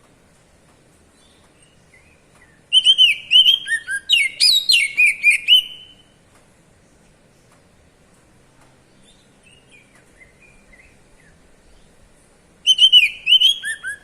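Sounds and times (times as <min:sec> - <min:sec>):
magpie-robin whistled song: 0:01.2 - 0:06.2, 0:09.0 - 0:12.0, 0:12.6 - 0:14.0.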